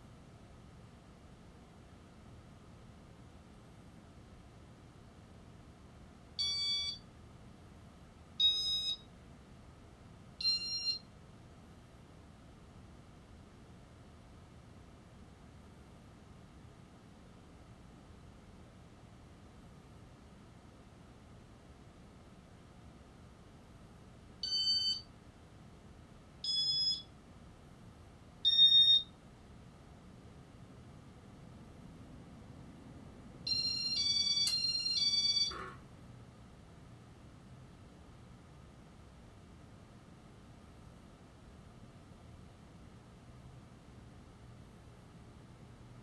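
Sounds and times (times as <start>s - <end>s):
fan control beeping: 6.4s - 7.0s, 8.4s - 9.1s, 10.4s - 11.0s, 24.4s - 25.1s, 26.4s - 27.1s, 28.4s - 29.2s, 33.5s - 35.8s
short electronic beeps: 26.5s - 27.1s.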